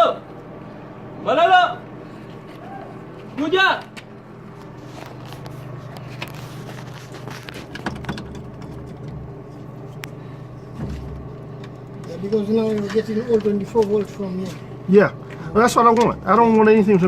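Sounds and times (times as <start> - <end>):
clicks and knocks: 7.4 - 9.2.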